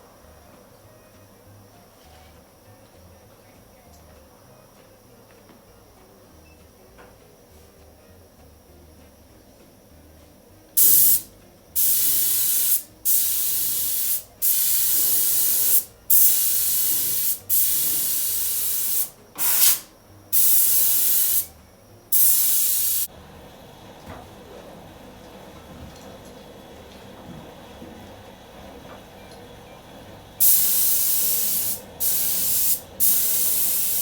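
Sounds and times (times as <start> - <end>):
paint spray gun hissing: 10.8 - 21.5, 22.1 - 23.1, 30.4 - 34.0.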